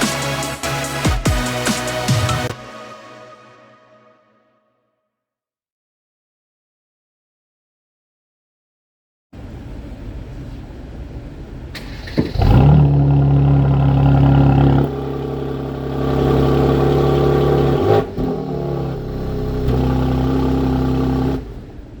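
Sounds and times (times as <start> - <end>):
car engine revving: 11.8 - 22.0.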